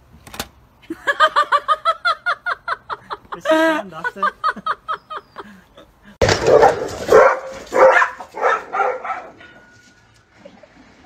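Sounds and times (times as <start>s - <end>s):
dog barking: 6.4s - 9.4s.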